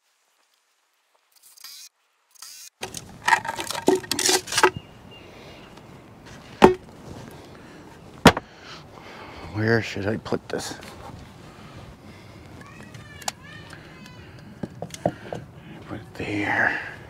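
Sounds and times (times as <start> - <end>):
lumber rustling and scraping: 2.8 - 4.9, 5.8 - 8.5, 10.6 - 13.2
wood knocks: 6.6 - 6.8, 8.2 - 8.5.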